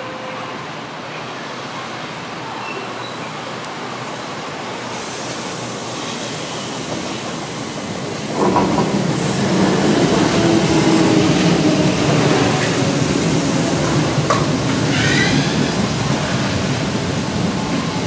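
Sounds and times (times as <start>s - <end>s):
electric train passing: 3.2s - 18.0s
wheels clattering on rails: 6.9s - 18.0s.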